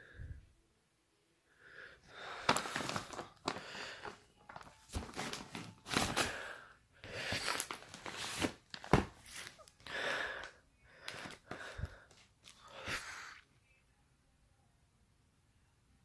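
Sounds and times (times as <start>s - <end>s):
packaging rustling and crinkling: 2.2s - 12.8s.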